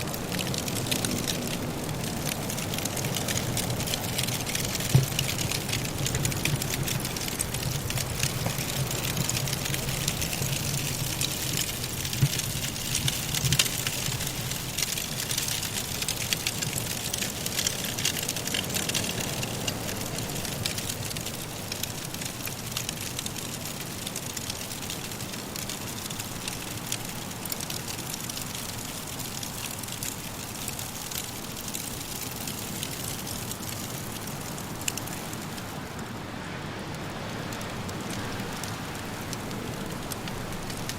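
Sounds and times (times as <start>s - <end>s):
firewood crackling: 0.0s - 40.9s
blizzard wind hiss: 29.9s - 40.9s.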